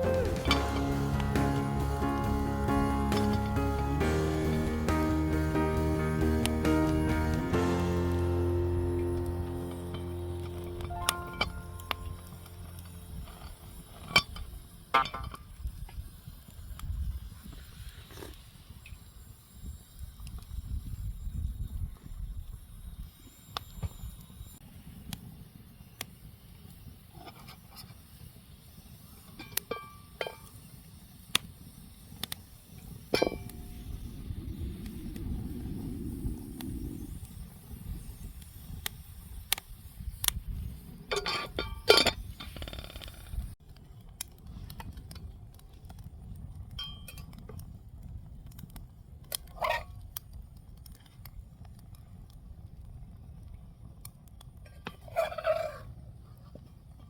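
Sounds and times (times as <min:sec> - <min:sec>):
low rumble: 0:00.0 - 0:14.6, 0:33.3 - 0:37.6.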